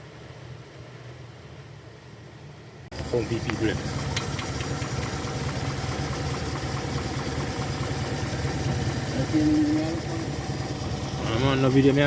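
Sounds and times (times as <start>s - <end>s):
car engine idling: 2.7s - 12.0s.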